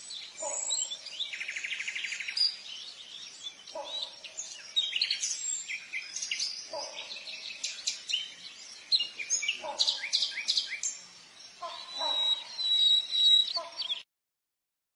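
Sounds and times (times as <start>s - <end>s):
birds chirping and whistling: 0.0s - 14.0s
lower bird call: 11.6s - 14.0s.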